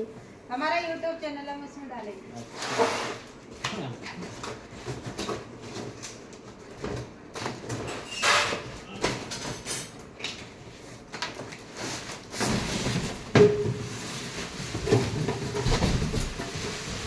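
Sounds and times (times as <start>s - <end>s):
objects knocking and rattling: 12.3s - 17.0s.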